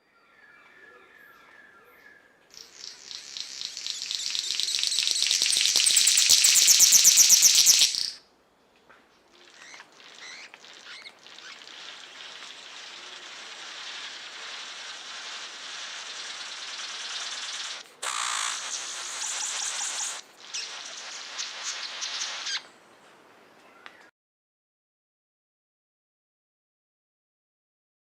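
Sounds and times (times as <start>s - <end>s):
steady high hiss: 2.5s - 8.3s, 9.4s - 23.7s
wild birds calling: 9.3s - 22.7s.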